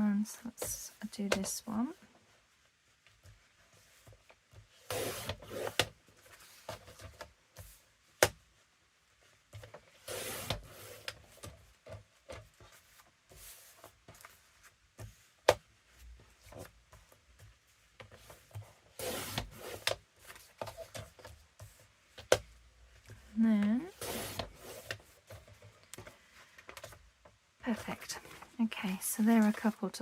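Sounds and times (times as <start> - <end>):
paper swishing on cutting surface: 23.9 - 25.0.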